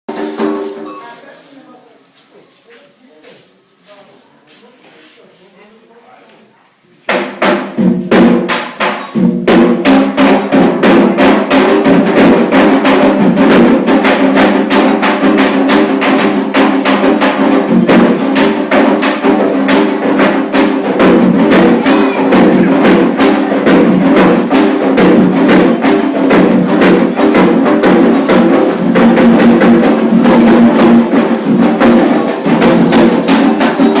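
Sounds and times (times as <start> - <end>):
fast dense drumming: 7.1 - 34.0.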